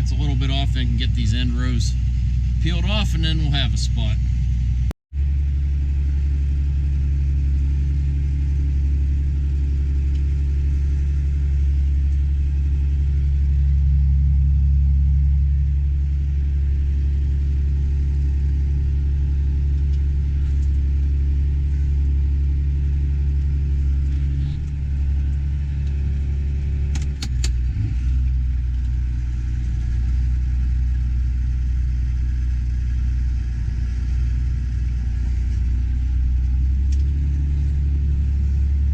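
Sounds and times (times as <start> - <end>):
tractor engine droning: 0.0 - 38.9
sharp clicks: 26.9 - 27.6.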